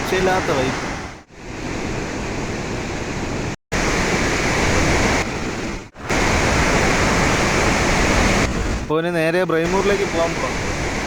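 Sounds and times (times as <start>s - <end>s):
waterfall rushing: 3.8s - 8.9s, 9.6s - 11.0s.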